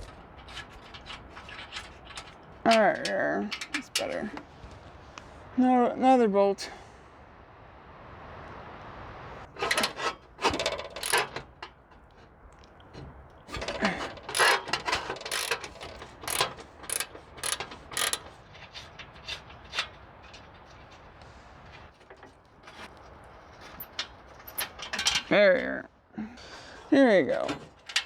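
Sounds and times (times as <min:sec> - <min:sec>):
socket ratchet clicking: 0:10.6 - 0:11.4, 0:13.6 - 0:18.4.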